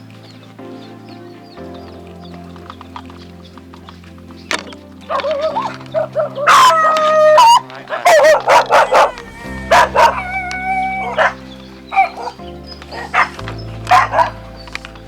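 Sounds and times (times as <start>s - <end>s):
background music: 0.0s - 15.0s
dog barking: 5.1s - 13.3s, 13.9s - 14.4s.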